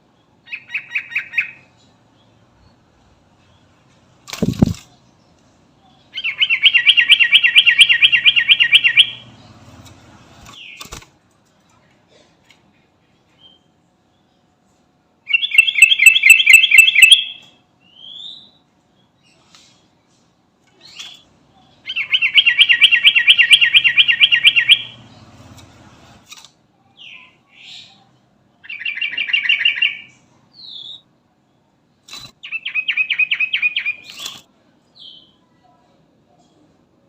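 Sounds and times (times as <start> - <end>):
bulbul singing fast repeated notes: 15.4 - 17.4.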